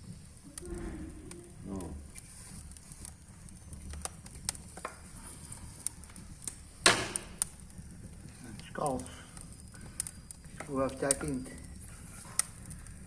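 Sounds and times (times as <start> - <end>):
firewood clicking in fireplace: 0.0 - 13.0
low rumble: 0.4 - 2.1.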